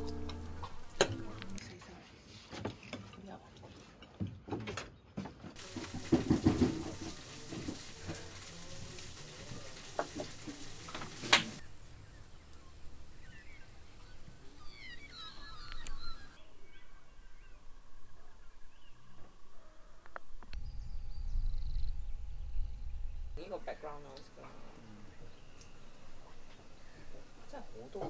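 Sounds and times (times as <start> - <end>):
quiet rural background: 0.0 - 28.0
birds chirping: 5.0 - 19.3, 20.6 - 28.0.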